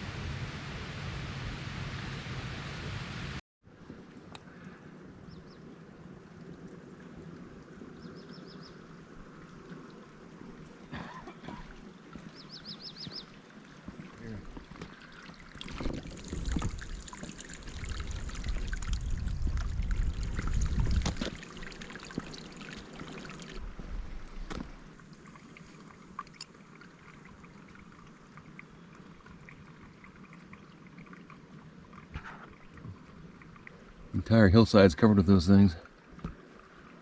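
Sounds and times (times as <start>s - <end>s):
heavy low rumble: 0.0s - 3.4s
rushing water: 0.0s - 37.0s.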